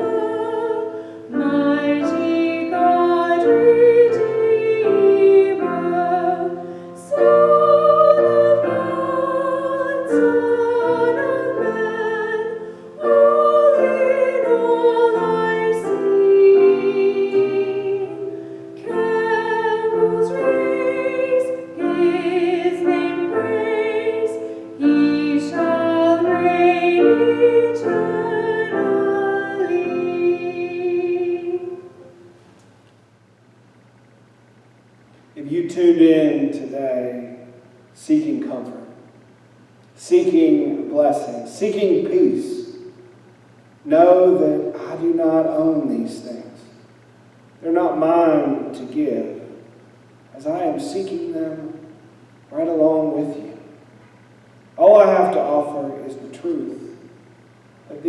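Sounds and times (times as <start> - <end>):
woman singing a hymn: 0.0 - 32.3
piano accompaniment: 0.0 - 32.4.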